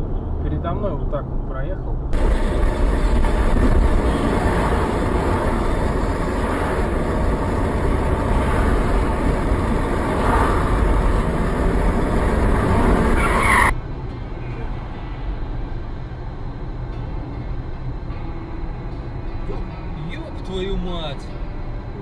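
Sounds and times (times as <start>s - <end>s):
vehicle engine and road noise: 0.0s - 22.0s.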